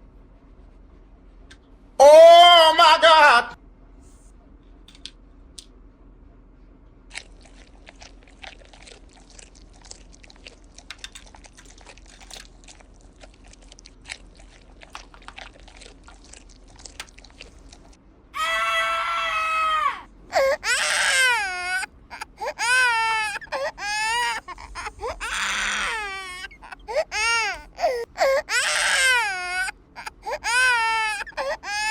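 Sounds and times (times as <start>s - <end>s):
plastic toys clicking: 10.9s - 11.6s
baby crying: 18.4s - 31.9s.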